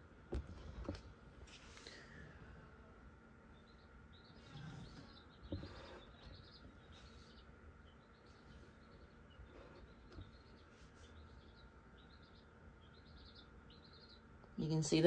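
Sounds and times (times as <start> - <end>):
low steady hum: 0.0 - 15.0
faint bird chirps: 3.4 - 15.0.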